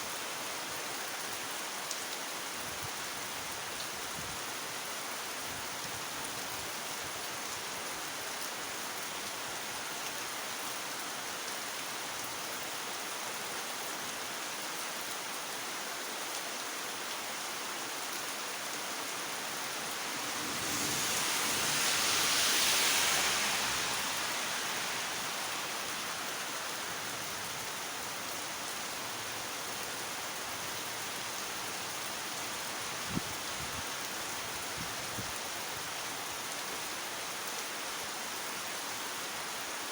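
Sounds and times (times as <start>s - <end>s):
heavy rain falling: 0.1s - 39.9s
loud hiss: 19.8s - 27.2s.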